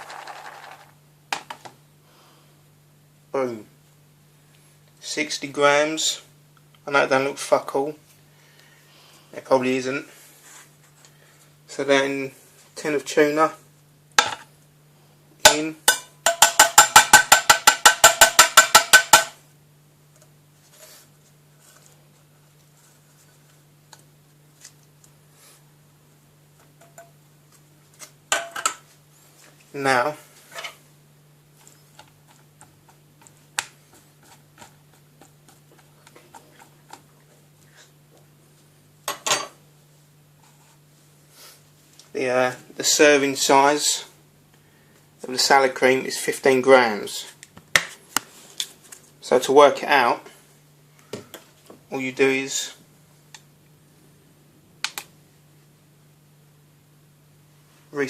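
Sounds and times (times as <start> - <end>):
faint steady hum: 0.0 - 58.0
metal utensil tapping a tin: 15.9 - 19.4.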